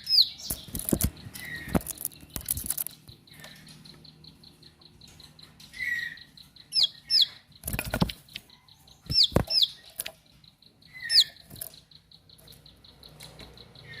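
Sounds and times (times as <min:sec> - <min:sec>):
bird calling sharp whistled notes: 0:10.9 - 0:11.6.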